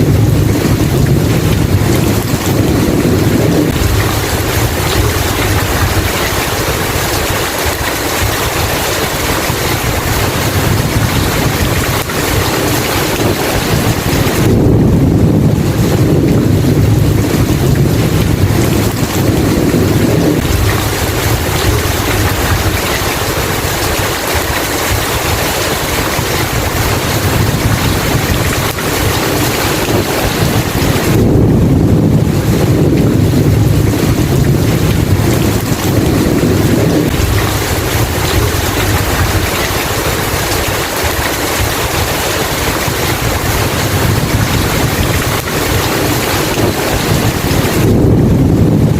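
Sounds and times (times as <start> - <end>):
heavy rain: 0.0 - 48.9
thunder rolling: 0.0 - 48.9.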